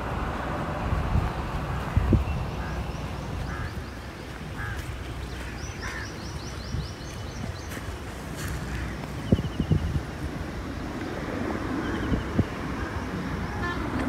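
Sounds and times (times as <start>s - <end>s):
wind rumbling on microphone: 0.0s - 14.0s
birds calling: 1.8s - 10.0s.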